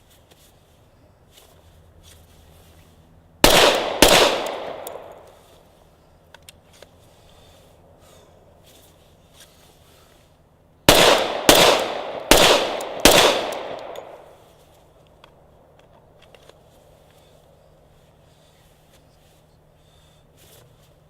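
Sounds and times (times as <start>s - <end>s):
pistol shots with ringing tail: 3.4s - 5.2s, 10.9s - 14.4s.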